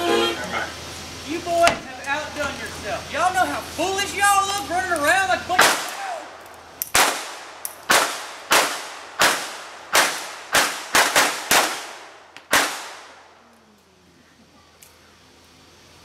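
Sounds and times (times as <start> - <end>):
blank gunshots with echo: 5.6 - 13.3.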